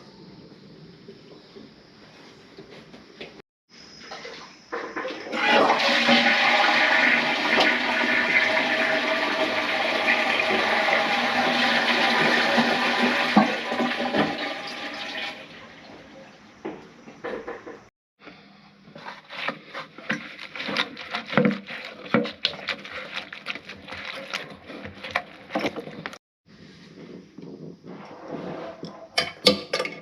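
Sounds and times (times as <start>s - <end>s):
toilet flushing: 4.0s - 16.4s.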